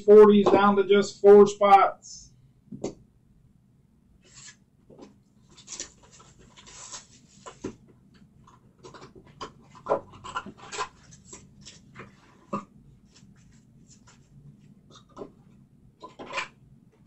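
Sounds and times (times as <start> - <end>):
foil card wrappers rustling: 5.4 - 7.8.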